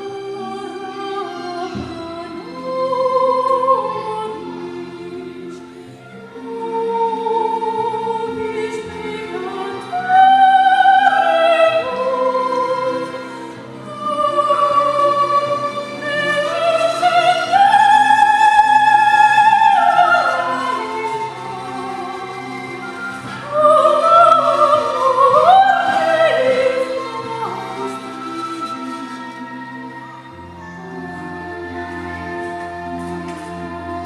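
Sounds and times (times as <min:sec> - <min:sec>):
sustained instrumental accompaniment: 0:00.0 - 0:34.0
high operatic voice singing: 0:06.4 - 0:29.3.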